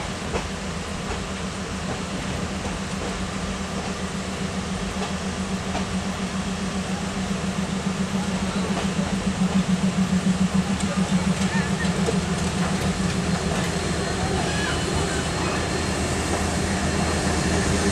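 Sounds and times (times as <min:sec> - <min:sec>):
passenger train rumbling: 0:00.0 - 0:17.9
rhythmic train pulsing: 0:00.0 - 0:17.9.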